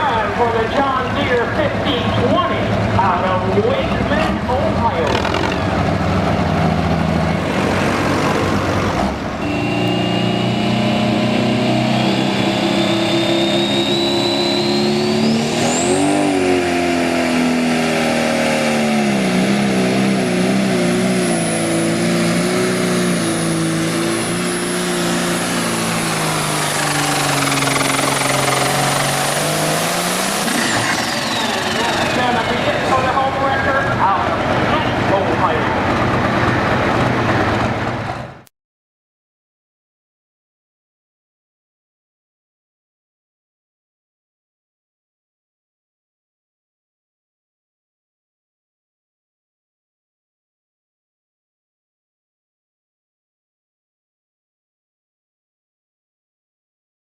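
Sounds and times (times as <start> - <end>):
diesel engine under load: 0.0 - 38.4
turbo whistle: 9.4 - 10.8, 12.1 - 15.4, 26.6 - 29.1.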